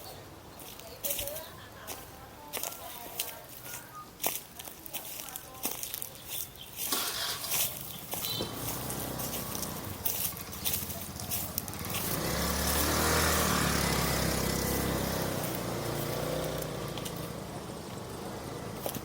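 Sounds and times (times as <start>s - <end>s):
vehicle passing by: 6.9s - 19.0s.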